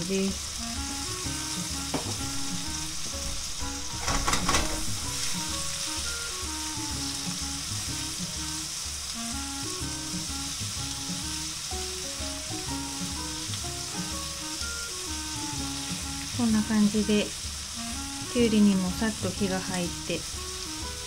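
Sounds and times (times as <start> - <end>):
food sizzling in a frying pan: 0.0 - 21.0.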